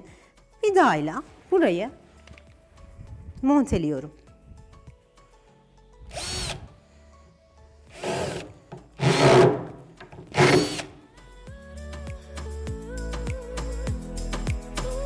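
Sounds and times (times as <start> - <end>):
power drill driving screws into wood: 6.1 - 6.7, 7.9 - 11.0.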